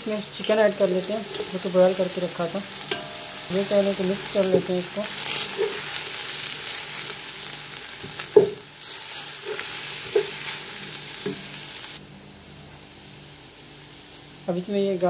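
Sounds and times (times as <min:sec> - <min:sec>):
food sizzling in oil: 0:00.0 - 0:15.0
wooden spoon knocking pot: 0:08.4 - 0:08.6.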